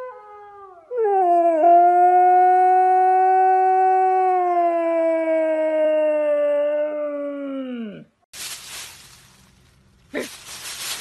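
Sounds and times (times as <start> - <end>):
howl from phone speaker: 0.0 - 8.0.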